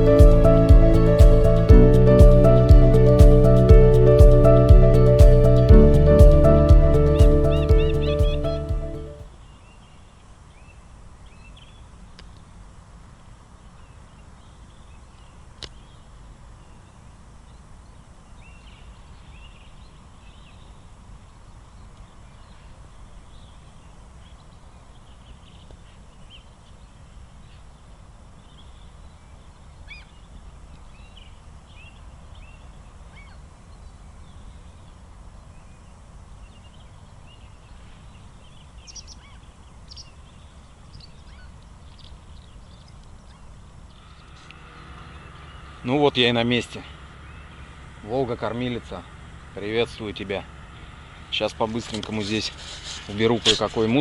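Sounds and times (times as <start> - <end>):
birds chirping: 0.0 - 9.2, 36.4 - 51.5
low outdoor rumble: 0.0 - 9.3, 40.3 - 54.0.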